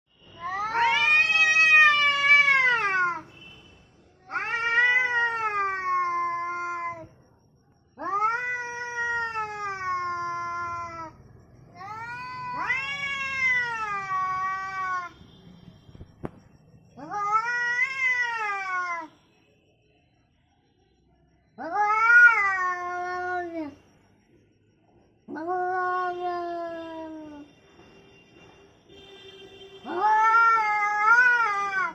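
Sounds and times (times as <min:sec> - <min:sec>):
cat yowling angrily: 0:00.4 - 0:03.2, 0:04.3 - 0:07.0, 0:08.0 - 0:11.1, 0:11.8 - 0:15.1, 0:17.0 - 0:19.1, 0:21.6 - 0:23.8, 0:25.3 - 0:27.4, 0:29.8 - 0:31.9.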